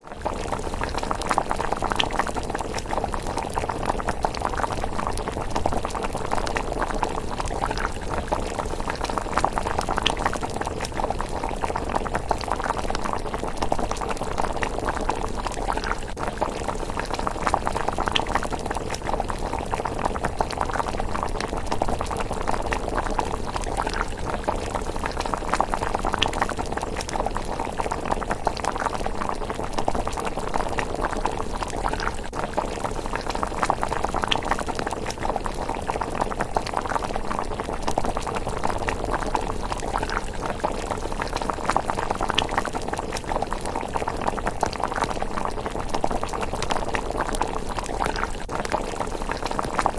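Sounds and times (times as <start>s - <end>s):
porridge bubbling: 0.0s - 49.9s.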